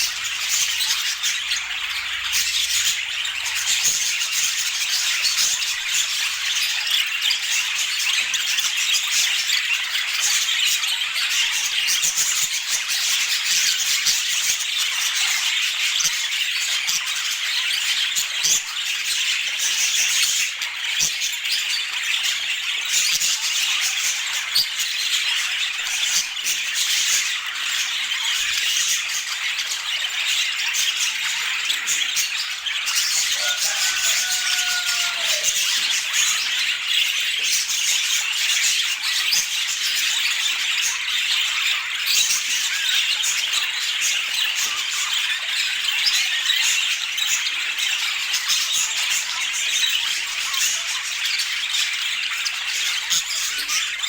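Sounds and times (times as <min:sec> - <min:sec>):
budgerigars chattering: 0:00.0 - 0:54.0.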